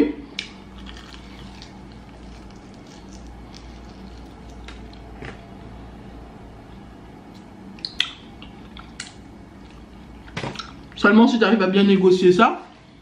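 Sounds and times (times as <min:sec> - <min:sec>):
faint steady hum: 0:00.0 - 0:13.0
quiet chewing: 0:00.4 - 0:05.4, 0:07.3 - 0:11.0
wet mouth clicks and smacks: 0:07.3 - 0:09.8.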